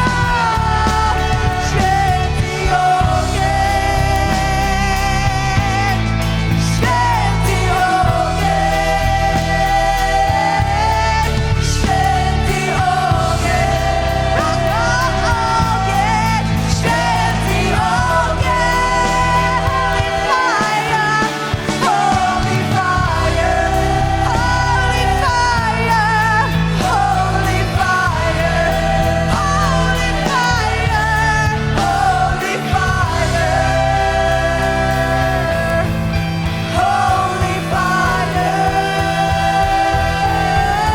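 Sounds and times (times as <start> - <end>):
band playing sustained chords: 0.0 - 40.9
person singing: 0.0 - 40.9.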